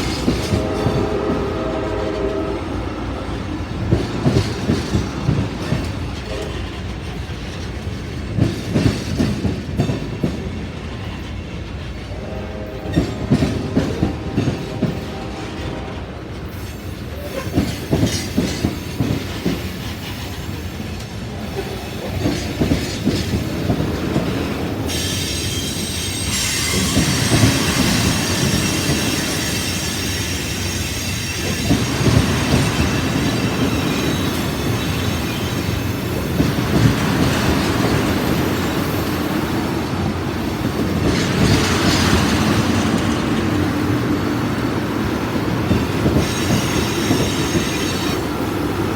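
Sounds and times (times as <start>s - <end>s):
train wheels clacking over rail joints: 0.0s - 48.9s
high wheel squeal: 24.8s - 36.4s, 45.6s - 48.3s.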